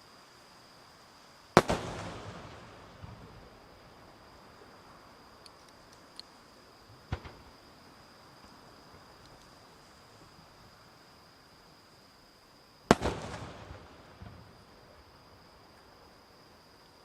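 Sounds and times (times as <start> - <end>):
insects chirring: 0.0 - 17.0
firework crackles: 1.5 - 6.2, 7.0 - 7.9, 12.9 - 15.1
firework bang: 1.6 - 3.6, 7.1 - 7.6, 12.9 - 14.4.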